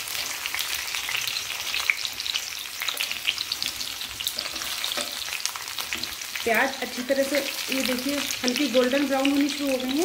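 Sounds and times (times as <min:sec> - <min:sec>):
oil sizzling and crackling: 0:00.0 - 0:10.0
wooden spatula stirring: 0:02.9 - 0:06.2.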